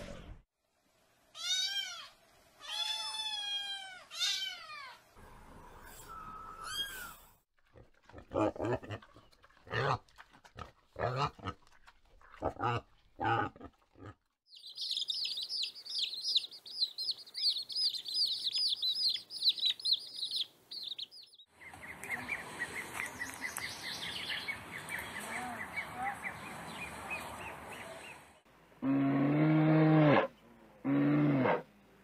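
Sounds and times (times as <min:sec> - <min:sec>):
chick peeping: 0:14.5 - 0:23.4
ducklings peeping: 0:14.5 - 0:26.2.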